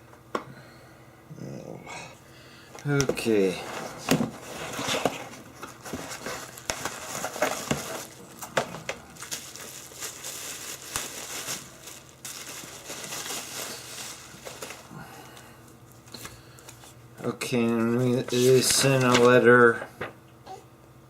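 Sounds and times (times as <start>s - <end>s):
packaging crinkling and rustling: 2.8s - 19.6s.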